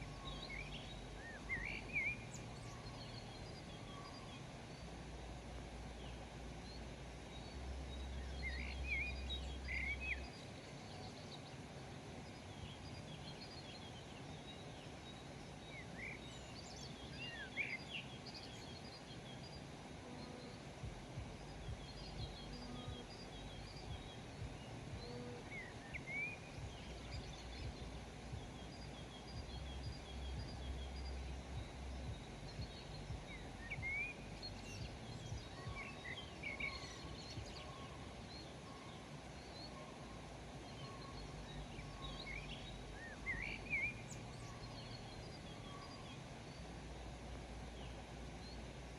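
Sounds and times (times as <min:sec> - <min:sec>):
birds chirping: 0:00.0 - 0:48.9
outdoor hiss: 0:00.0 - 0:48.9
low rumble: 0:20.8 - 0:35.8.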